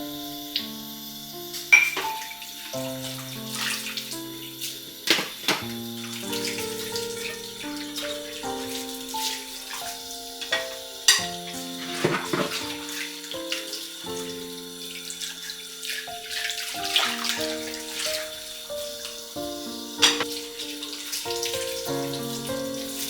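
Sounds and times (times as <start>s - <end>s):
gentle background music: 0.0s - 23.0s
tap water running into sink: 1.5s - 23.0s
dishes clinking: 1.7s - 2.3s, 10.4s - 12.7s, 20.0s - 20.4s.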